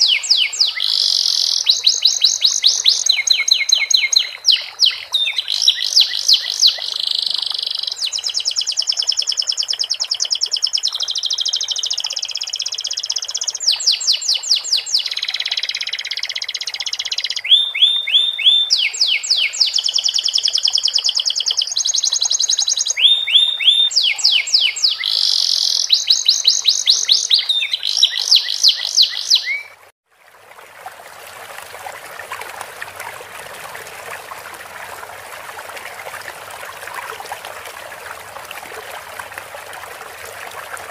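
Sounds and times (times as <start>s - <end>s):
canary singing trills: 0.0s - 29.8s
trickling water: 0.0s - 40.9s.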